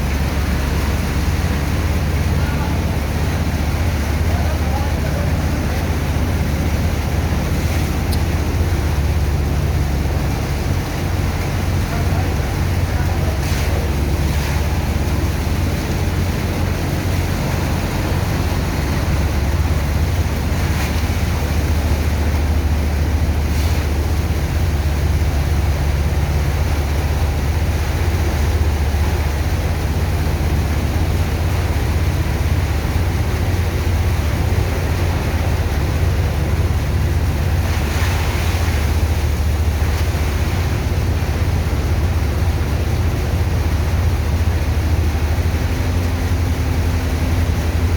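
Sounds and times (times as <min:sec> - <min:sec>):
pump machinery droning: 0:00.0 - 0:47.9
rushing water: 0:00.0 - 0:47.9.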